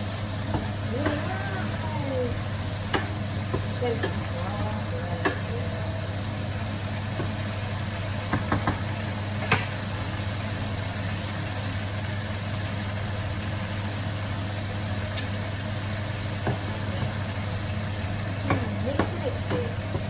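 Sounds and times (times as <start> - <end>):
low hum: 0.0 - 8.2
onions sizzling in a pan: 0.0 - 20.0
utensil tapping a pan: 2.9 - 5.6, 7.1 - 7.4, 8.2 - 9.9, 18.4 - 20.0.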